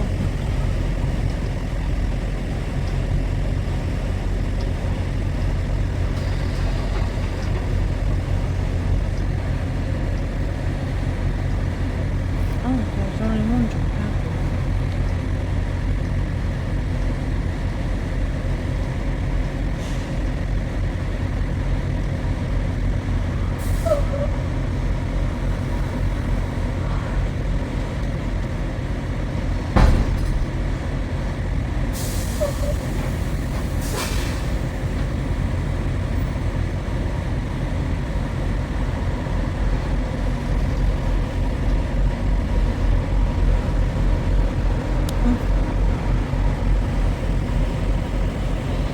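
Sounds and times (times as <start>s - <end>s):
truck engine rumbling: 0.0s - 48.9s
sharp knock: 29.8s - 30.5s
short hisses: 33.8s - 34.5s.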